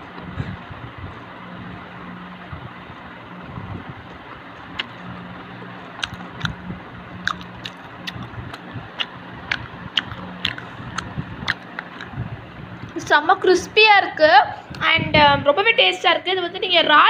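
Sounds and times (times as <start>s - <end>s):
steady background hum: 0.0s - 17.0s
crunchy food being chewed: 4.1s - 13.0s.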